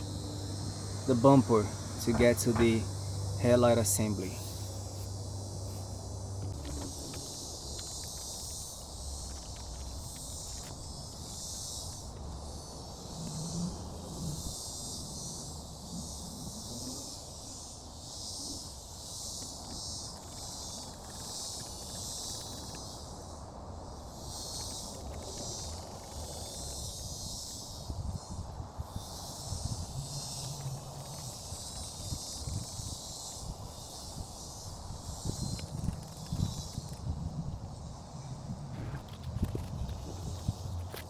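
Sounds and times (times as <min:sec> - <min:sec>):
insects chirping: 0:00.0 - 0:41.0.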